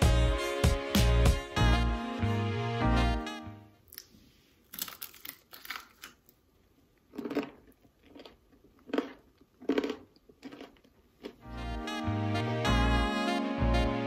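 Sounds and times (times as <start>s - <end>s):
crunchy chewing: 4.7s - 6.4s, 7.0s - 11.5s.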